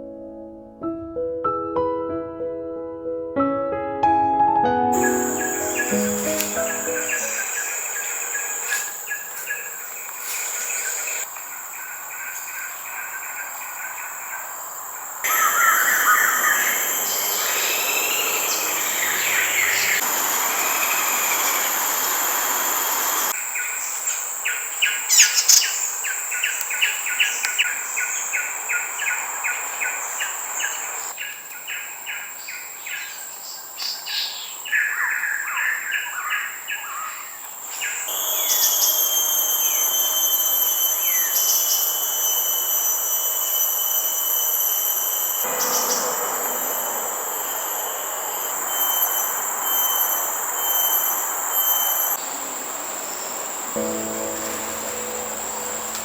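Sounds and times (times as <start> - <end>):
birds calling: 5.0 - 23.9
high-pitched insect drone: 5.0 - 31.1, 38.0 - 56.0.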